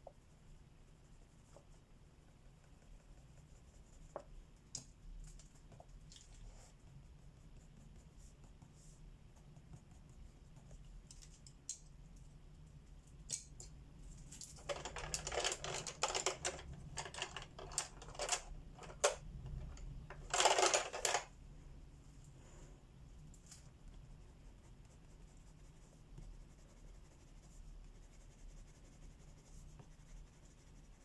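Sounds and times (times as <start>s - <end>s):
colored pencil scratching paper: 0.2s - 4.3s, 5.6s - 10.8s, 23.6s - 31.0s.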